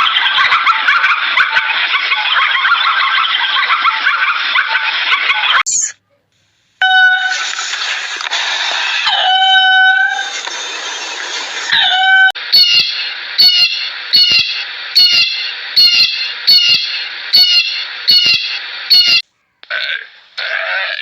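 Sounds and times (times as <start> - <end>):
steady hiss: 6.3 - 6.8.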